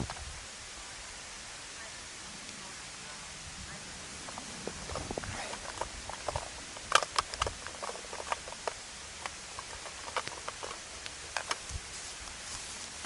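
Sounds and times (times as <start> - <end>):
campfire crackling and popping: 3.5 - 13.0.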